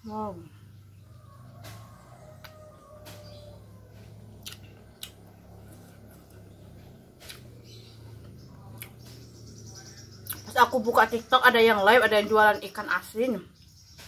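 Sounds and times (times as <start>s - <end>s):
person chewing food: 4.0s - 9.0s
mouth clicks and smacks: 4.4s - 5.2s.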